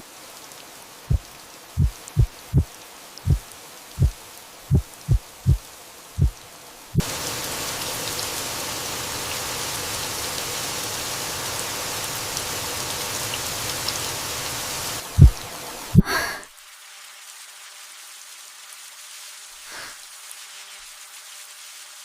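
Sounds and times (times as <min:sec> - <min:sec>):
rain falling: 0:00.0 - 0:22.0
short low thuds: 0:01.1 - 0:02.7, 0:04.0 - 0:05.6, 0:15.2 - 0:15.4.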